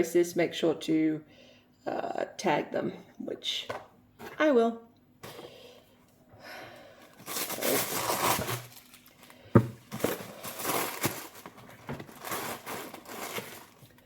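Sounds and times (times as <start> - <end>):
packaging rustling: 7.0 - 14.0.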